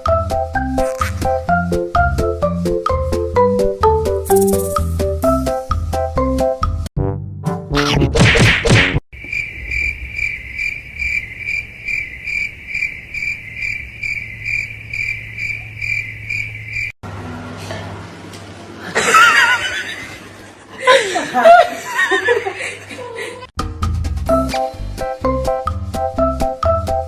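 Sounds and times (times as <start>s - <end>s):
insect chirping: 4.3s - 4.9s, 9.1s - 17.0s.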